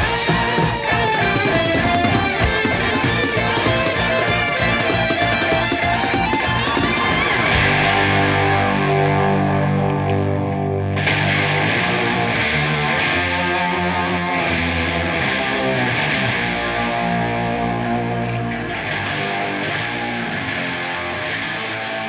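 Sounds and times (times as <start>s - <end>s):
bass guitar: 0.0s - 22.0s
distorted electric guitar: 0.0s - 22.0s.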